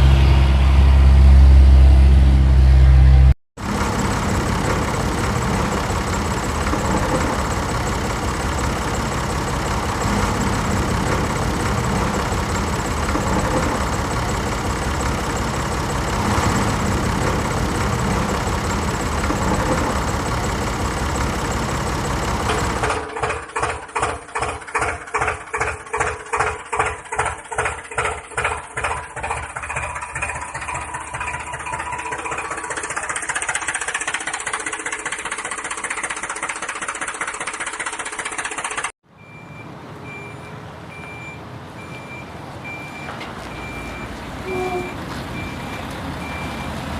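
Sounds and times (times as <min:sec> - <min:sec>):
engine running: 0:00.0 - 0:46.9
engine idling with slow chug: 0:03.6 - 0:39.0.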